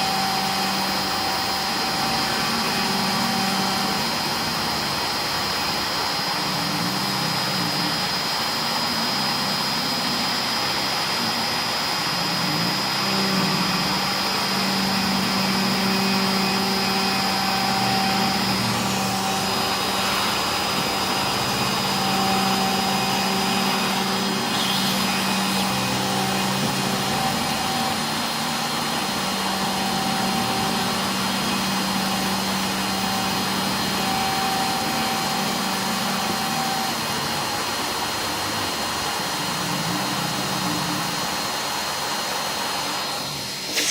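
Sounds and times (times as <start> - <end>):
machine running noise: 0.0 - 43.9
router spindle high tone: 0.0 - 43.9
stepper motors driving: 11.5 - 38.1, 43.4 - 43.9.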